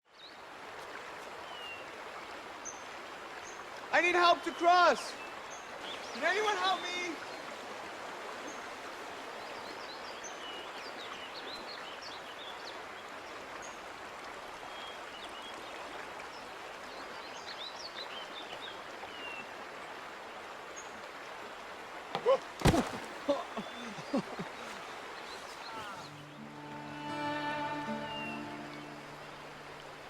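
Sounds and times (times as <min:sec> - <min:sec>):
flowing stream rushing: 0:00.1 - 0:30.0
small birds chirping: 0:22.2 - 0:26.6.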